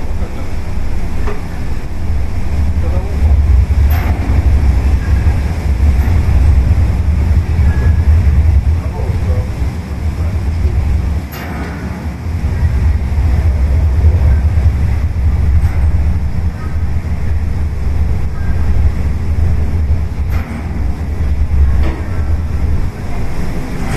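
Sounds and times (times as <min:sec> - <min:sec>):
ship engine low rumble: 0:00.0 - 0:23.9.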